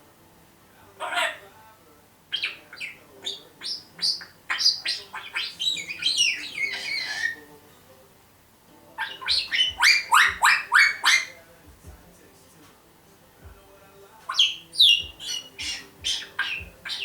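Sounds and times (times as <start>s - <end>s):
parrot chirping and squawking: 1.0s - 1.4s, 2.3s - 7.5s, 9.0s - 11.4s, 14.3s - 17.0s.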